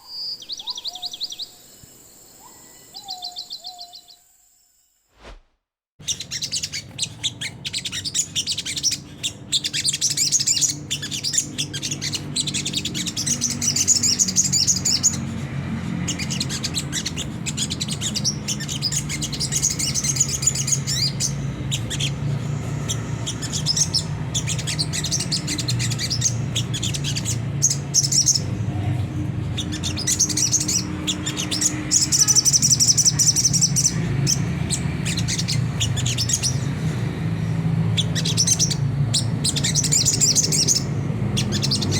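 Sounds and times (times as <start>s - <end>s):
bird twittering song: 0.0s - 4.6s, 6.0s - 41.9s.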